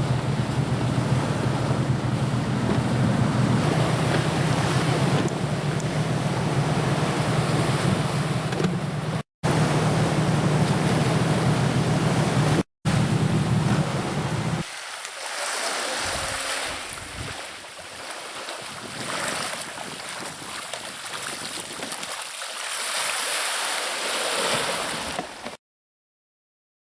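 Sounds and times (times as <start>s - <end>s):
wind rumbling on microphone: 0.0s - 9.2s, 16.0s - 18.0s, 18.6s - 22.2s
sea waves washing: 0.0s - 25.5s.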